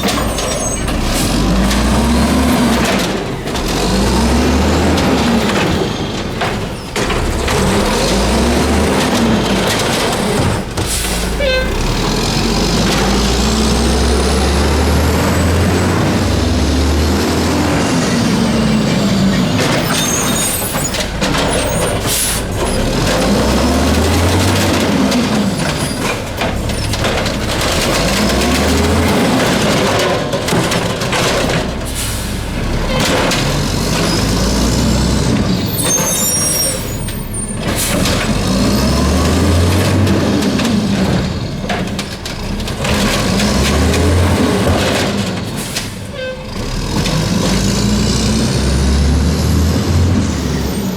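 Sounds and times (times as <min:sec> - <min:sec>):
garbage truck diesel engine revving: 0:00.0 - 0:50.9.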